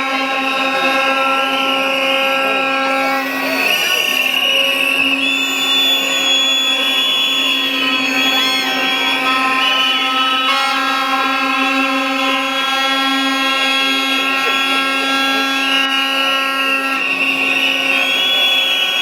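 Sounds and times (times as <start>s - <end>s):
buzzing horn drone: 0.0s - 19.0s
high whistling: 0.0s - 19.0s.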